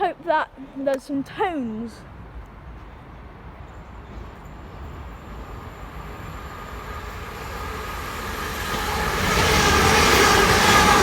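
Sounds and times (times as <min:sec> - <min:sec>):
electric train rushing past: 0:03.1 - 0:11.0.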